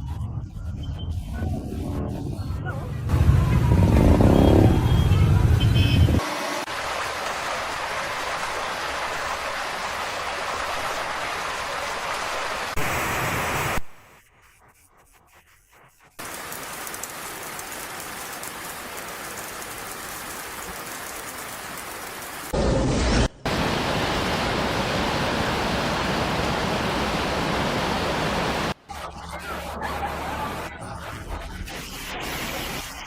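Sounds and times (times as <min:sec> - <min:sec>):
rain and running water: 0:03.1 - 0:14.2, 0:16.1 - 0:22.6, 0:23.4 - 0:28.8.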